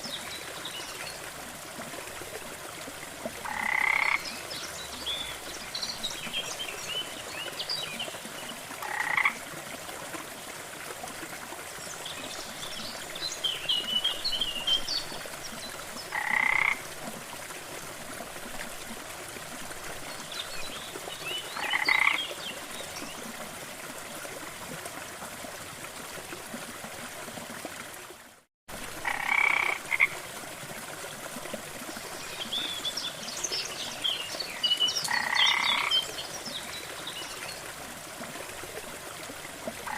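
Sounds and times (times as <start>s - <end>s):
falling water rushing: 0.0s - 39.9s
frog croaking: 3.4s - 4.2s, 8.8s - 9.4s, 16.1s - 16.8s, 21.6s - 22.2s, 29.0s - 30.1s, 35.1s - 35.9s.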